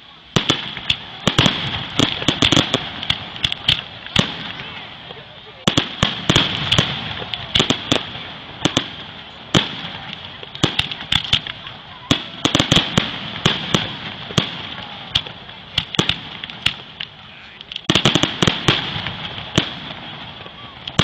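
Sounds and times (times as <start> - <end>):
crackling hiss: 0.0 - 21.0
firework shells bursting: 0.4 - 21.0.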